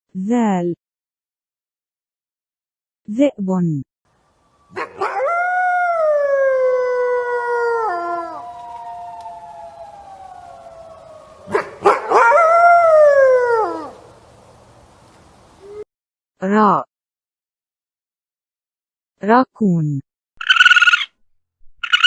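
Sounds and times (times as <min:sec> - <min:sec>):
wolf howling: 0:04.5 - 0:14.2.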